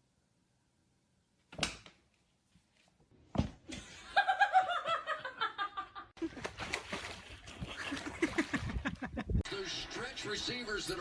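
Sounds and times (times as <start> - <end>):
person laughing: 7.7 - 9.4.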